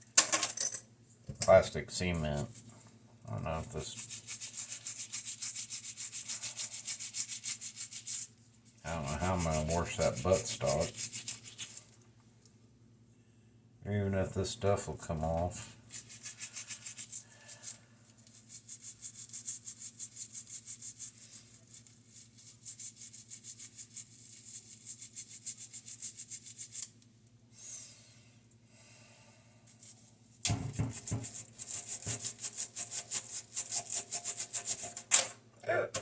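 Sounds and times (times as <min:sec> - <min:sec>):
scrub brush scrubbing plastic: 0:03.4 - 0:12.0, 0:15.2 - 0:27.0, 0:29.8 - 0:35.1.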